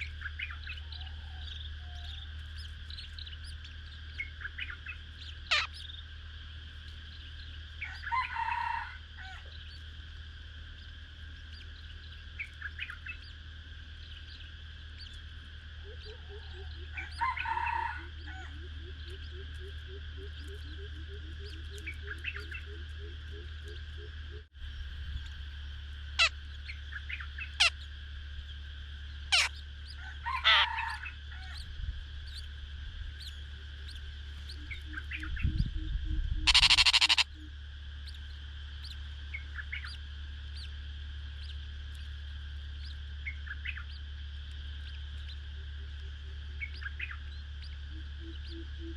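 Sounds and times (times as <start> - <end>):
birds calling: 0.0 - 48.9
low hum: 0.0 - 48.9
steady high-pitched buzz: 0.0 - 48.9
sharp short bird chirps: 29.3 - 29.6, 34.9 - 37.5.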